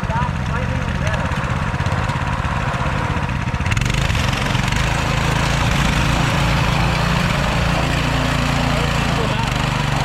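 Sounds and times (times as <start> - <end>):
mini bike engine running: 0.0 - 10.0.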